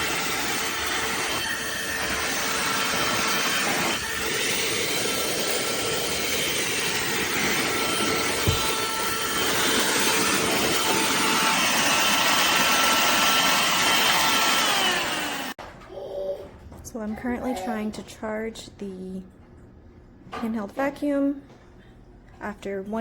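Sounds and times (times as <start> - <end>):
handheld vacuum running: 0.0 - 15.6.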